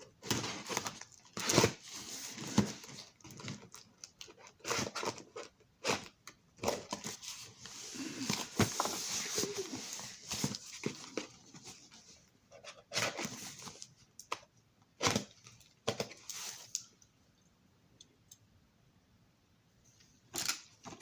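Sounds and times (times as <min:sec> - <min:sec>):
packing crinkling: 0:00.2 - 0:11.7.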